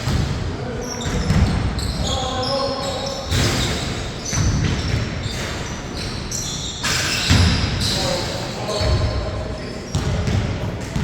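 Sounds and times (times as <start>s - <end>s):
basketball bouncing on court: 0.0s - 2.2s, 4.2s - 5.5s, 7.1s - 7.9s, 8.7s - 9.3s, 9.9s - 11.0s
sneakers squeaking on floor: 0.0s - 11.0s.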